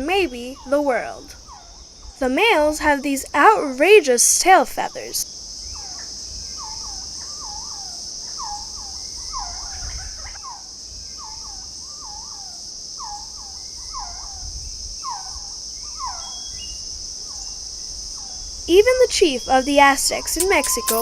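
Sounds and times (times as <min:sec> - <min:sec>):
high insect chorus: 0:00.0 - 0:21.0
short bird calls: 0:19.3 - 0:21.0.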